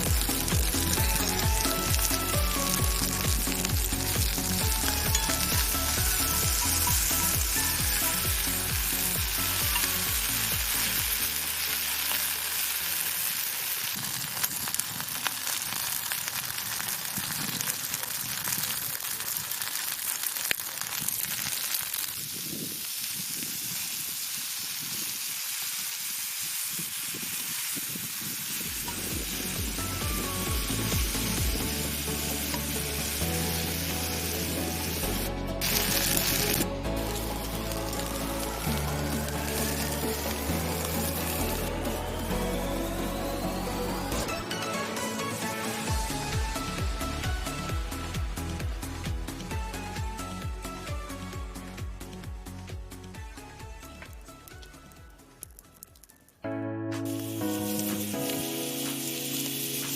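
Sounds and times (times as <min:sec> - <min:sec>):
background music with bass: 0:00.0 - 0:12.6, 0:28.8 - 0:55.6
food sizzling on a griddle: 0:00.0 - 0:51.3, 0:57.0 - 0:59.9.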